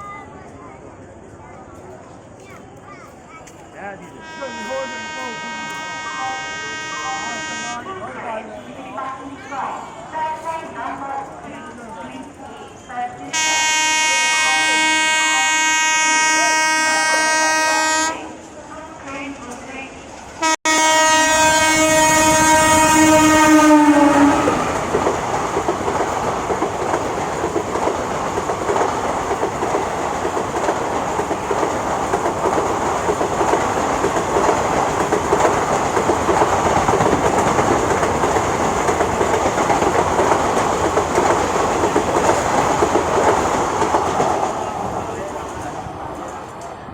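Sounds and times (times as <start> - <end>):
train horn: 4.2 - 7.9, 13.3 - 18.3, 20.4 - 24.6
carriages rushing clatter: 22.0 - 46.9.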